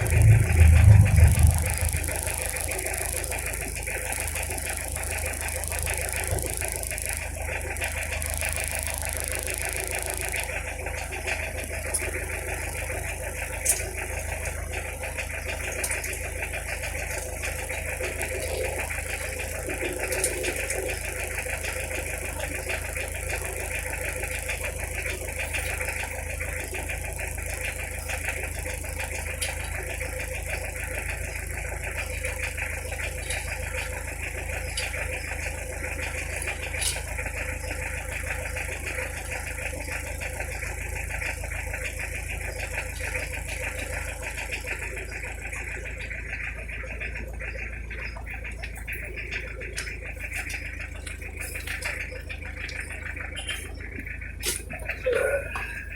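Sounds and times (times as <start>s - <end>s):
diesel engine running: 0.0s - 55.9s
faint clicks: 32.0s - 55.8s.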